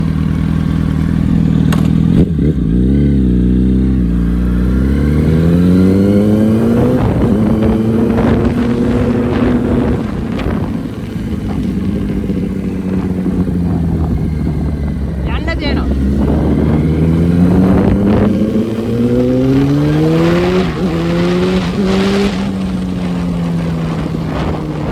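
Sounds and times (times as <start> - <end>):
motorcycle engine and exhaust: 0.0 - 24.9.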